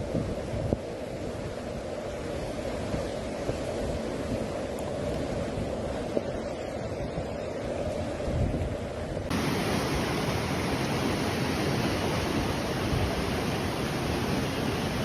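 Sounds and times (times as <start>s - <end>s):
floodwater rushing: 9.3s - 15.0s.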